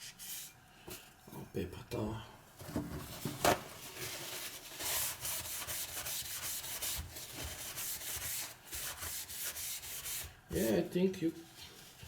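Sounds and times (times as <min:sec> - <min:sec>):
paper towel wiping stone: 0:04.0 - 0:10.8.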